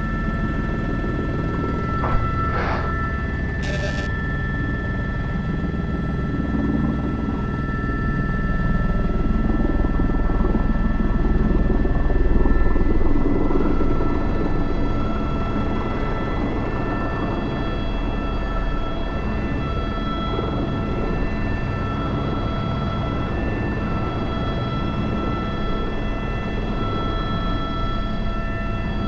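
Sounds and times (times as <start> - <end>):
high turbine whine: 0.0 - 6.7
helicopter rotor rumble: 0.0 - 29.0.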